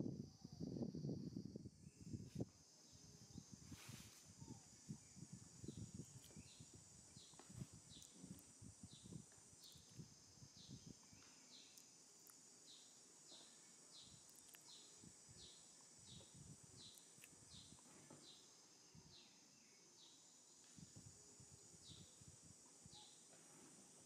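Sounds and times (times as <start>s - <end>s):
high insect hum: 0.0s - 24.0s.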